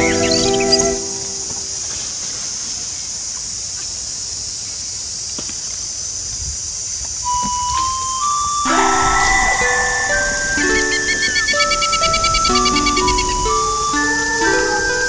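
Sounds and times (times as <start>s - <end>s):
steady high-pitched hiss: 0.0s - 15.0s
single notes stepping upward: 7.3s - 15.0s.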